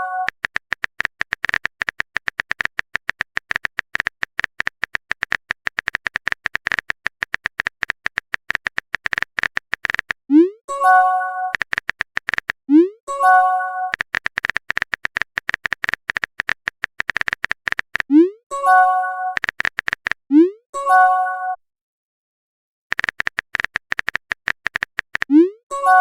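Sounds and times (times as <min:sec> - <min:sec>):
keyboard typing clicks: 0:00.0 - 0:18.2, 0:19.2 - 0:20.3, 0:22.9 - 0:25.5.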